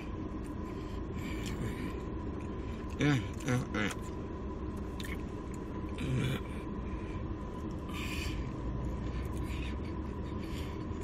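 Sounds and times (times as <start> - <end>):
low background hum: 0.0 - 11.0
person eating: 1.2 - 4.2, 4.8 - 6.6.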